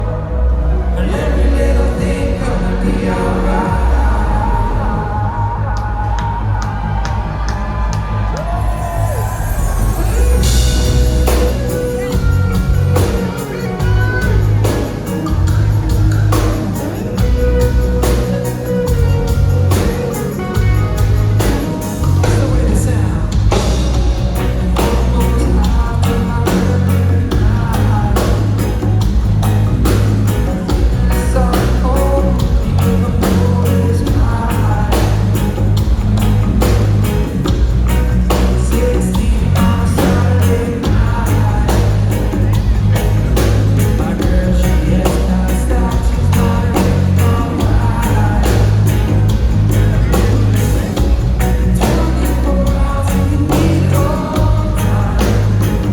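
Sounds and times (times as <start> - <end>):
person singing: 0.0 - 7.8, 8.4 - 55.9
deep heavy bass: 0.0 - 55.9
guitar: 0.0 - 55.9
steady drum beat: 5.5 - 55.9.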